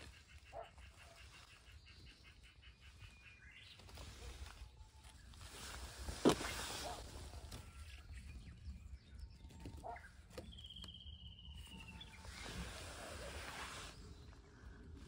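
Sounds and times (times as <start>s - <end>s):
soft rustles: 3.7s - 8.2s.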